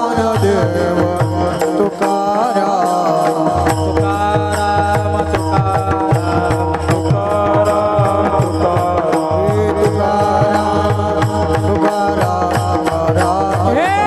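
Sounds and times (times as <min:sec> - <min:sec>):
devotional music: 0:00.0 - 0:14.0
hand drum beating: 0:03.4 - 0:14.0.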